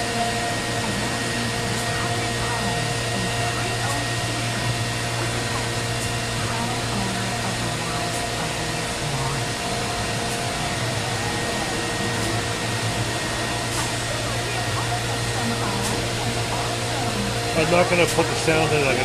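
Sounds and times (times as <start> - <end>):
machine drone with high whine: 0.0 - 19.0.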